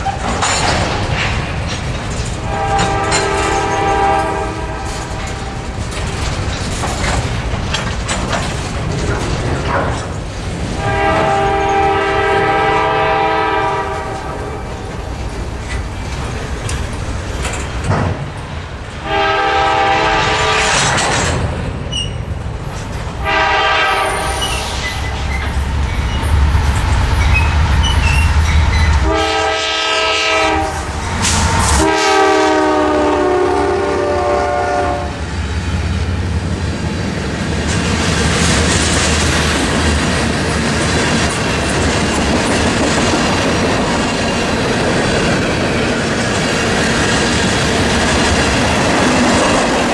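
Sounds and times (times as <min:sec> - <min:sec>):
train wheels rumbling on rails: 0:00.0 - 0:49.9
train horn blasts: 0:02.4 - 0:05.8, 0:10.8 - 0:14.8, 0:19.0 - 0:21.1, 0:23.2 - 0:26.3, 0:27.3 - 0:35.2.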